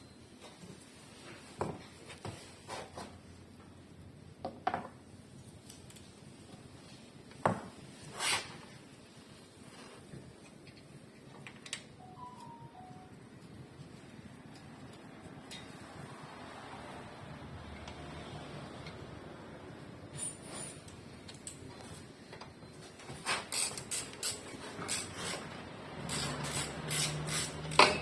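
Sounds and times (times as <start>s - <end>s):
short scrape: 8.1s - 8.6s
hand tools clicking and clinking: 23.4s - 28.0s.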